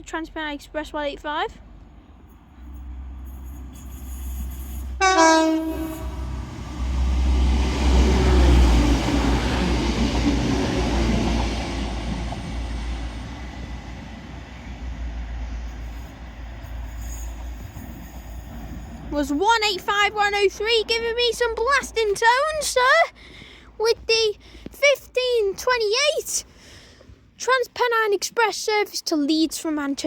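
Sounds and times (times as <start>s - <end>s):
train rumble passing: 0.0s - 26.2s
train horn blast: 5.0s - 6.6s.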